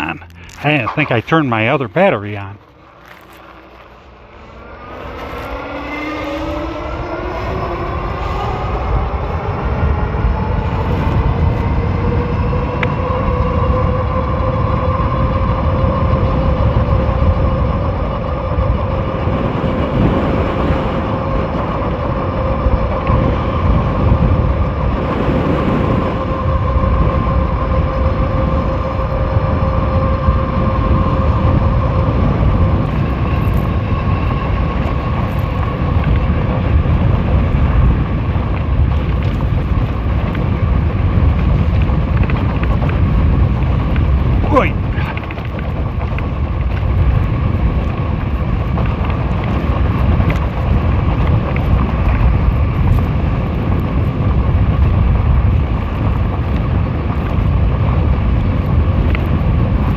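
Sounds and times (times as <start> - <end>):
electric motor whine: 0.0 - 44.6
wind rumble on microphone: 0.0 - 59.9.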